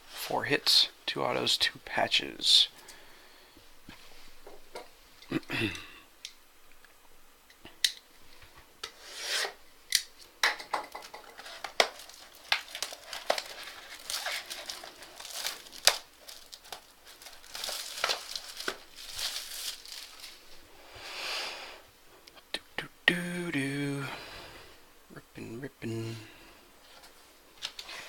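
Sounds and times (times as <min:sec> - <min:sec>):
cardboard packaging rustling: 0:10.9 - 0:20.6
plastic wrap crinkling and tearing: 0:10.9 - 0:20.6.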